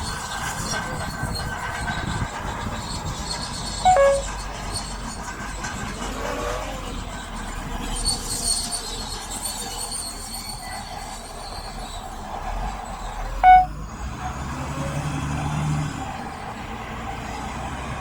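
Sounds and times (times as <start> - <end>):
loud pitched tone: 3.9 - 4.3, 13.4 - 13.7.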